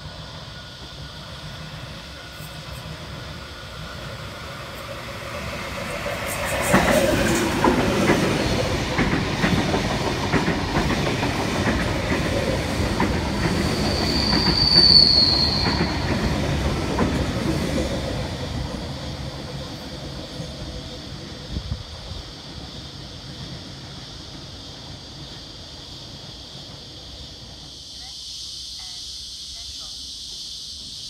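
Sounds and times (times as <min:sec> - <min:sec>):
train wheel-on-rail rumble: 0:00.0 - 0:31.0
high wheel squeal: 0:13.5 - 0:16.4.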